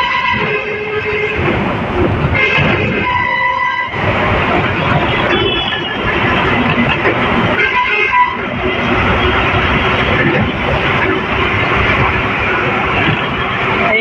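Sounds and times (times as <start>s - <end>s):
truck horn: 0.0s - 1.5s, 2.3s - 4.1s, 5.0s - 6.1s, 7.5s - 8.9s
truck engine and road noise: 0.0s - 14.0s.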